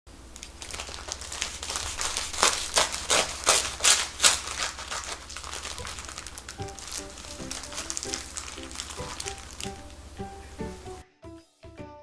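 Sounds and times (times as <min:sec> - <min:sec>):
parchment paper crinkling: 0:00.1 - 0:10.9
knife sawing through sandwich: 0:01.6 - 0:05.1.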